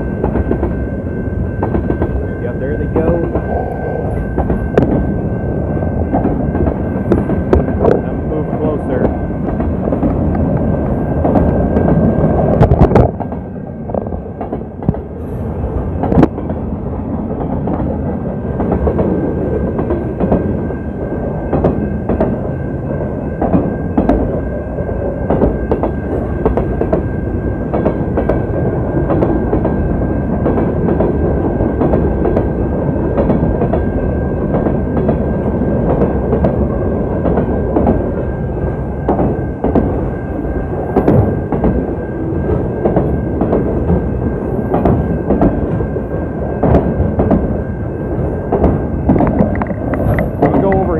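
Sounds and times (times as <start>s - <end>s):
freight train wheels rumbling: 0.0s - 50.9s
wheels clicking over rail joints: 16.0s - 24.5s, 40.9s - 50.9s.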